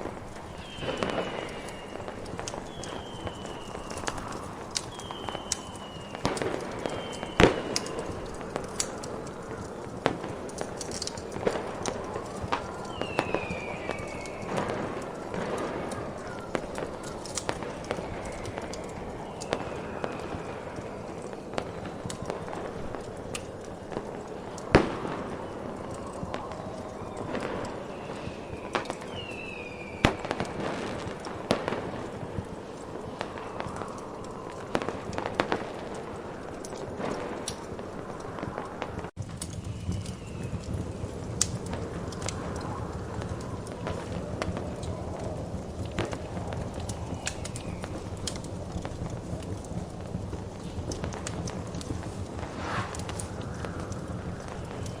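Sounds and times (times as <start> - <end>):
fireworks popping and crackling: 0.0 - 55.0
snowstorm wind rushing: 0.0 - 55.0
falling whistle: 0.5 - 8.2, 12.6 - 14.7, 26.0 - 30.4
steady hiss: 39.9 - 55.0
firework bang: 52.0 - 53.7.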